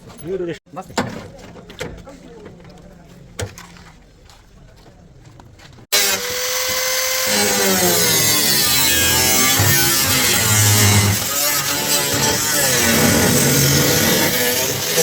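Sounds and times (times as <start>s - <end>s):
electric power tool whining: 5.9s - 15.0s.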